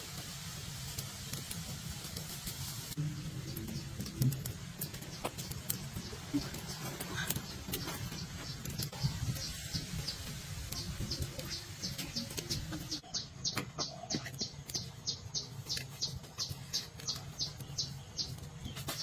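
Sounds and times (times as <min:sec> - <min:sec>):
high chirp: 0:07.4 - 0:18.4.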